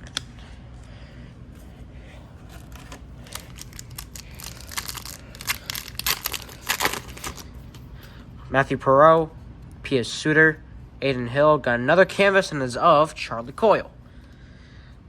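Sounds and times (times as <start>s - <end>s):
trading cards flipped through: 2.4s - 7.9s.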